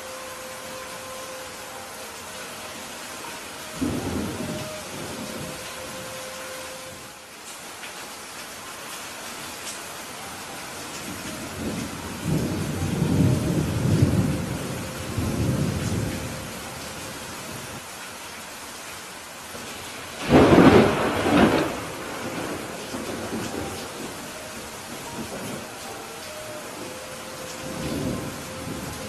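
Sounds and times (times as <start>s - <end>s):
steady rain falling: 0.0s - 29.0s
thunder rumbling: 3.2s - 6.2s, 11.1s - 16.7s, 20.2s - 29.0s.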